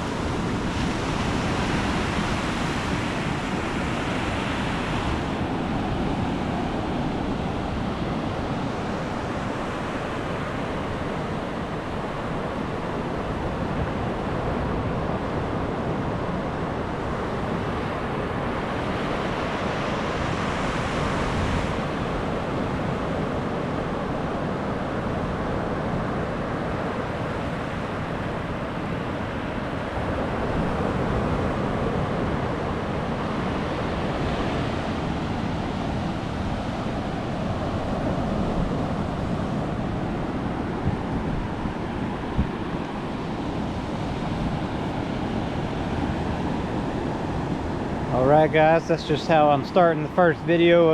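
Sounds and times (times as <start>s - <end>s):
surf breaking on beach: 17.0s - 50.9s.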